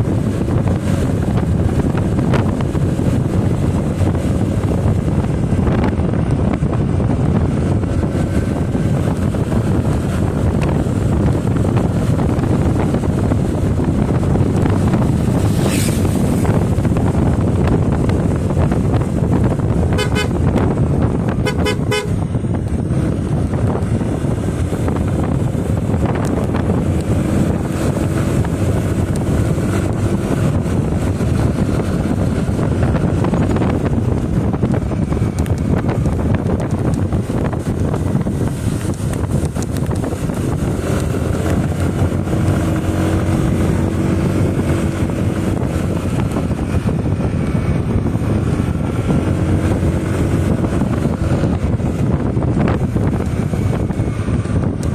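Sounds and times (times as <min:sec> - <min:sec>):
motorcycle road noise: 0:00.0 - 0:54.9
wind buffeting: 0:00.0 - 0:54.9
vehicle horn beeping: 0:19.9 - 0:20.4, 0:21.4 - 0:22.2.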